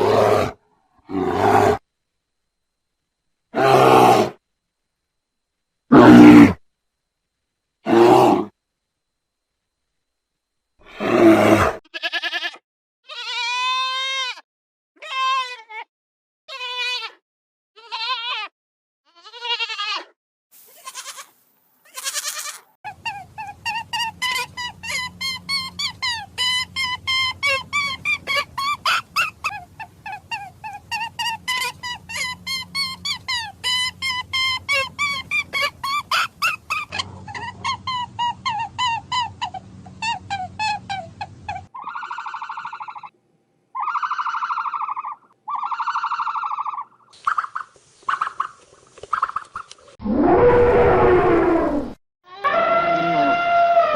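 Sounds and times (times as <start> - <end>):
goat grunting: 0.0 - 1.8, 22.9 - 41.6
goat bleating: 11.9 - 14.4, 15.0 - 15.8, 16.5 - 17.2, 17.8 - 18.5, 19.1 - 20.1, 20.7 - 37.8
birds honking: 22.9 - 37.0.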